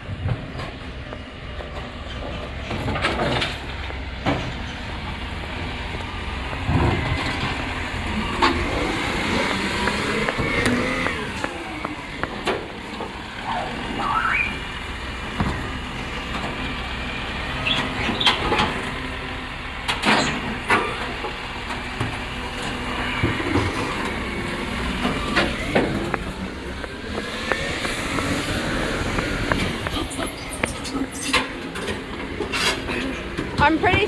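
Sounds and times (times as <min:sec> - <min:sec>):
truck engine rumble: 0:00.0 - 0:34.0
sharp knocks and bangs: 0:15.3 - 0:16.0.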